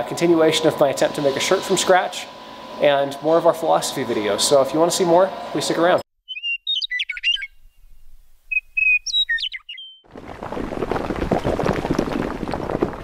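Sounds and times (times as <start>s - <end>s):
songbird chirping: 6.2s - 10.0s
ground cracking and crumbling: 10.1s - 13.0s.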